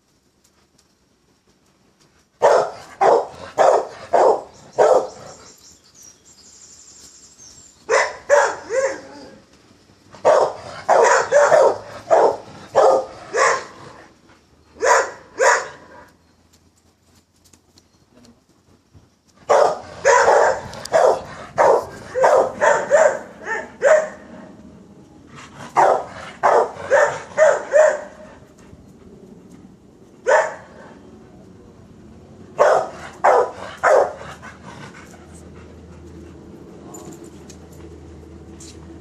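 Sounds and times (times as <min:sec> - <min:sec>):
dog barking rapidly: 0:02.4 - 0:05.3, 0:07.9 - 0:09.0, 0:10.2 - 0:14.0, 0:14.8 - 0:16.0, 0:19.4 - 0:24.3, 0:25.7 - 0:28.3, 0:30.2 - 0:30.8, 0:32.6 - 0:34.4.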